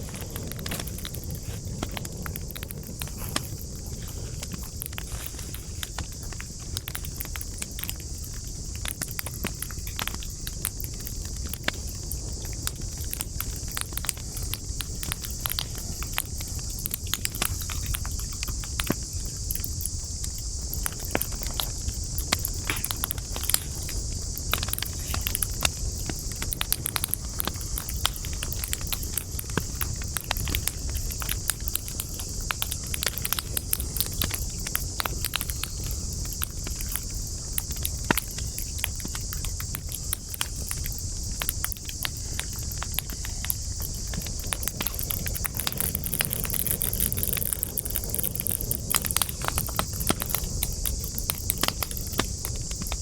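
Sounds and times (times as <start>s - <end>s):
campfire crackling: 0.0s - 53.0s
insect chorus: 0.0s - 53.0s.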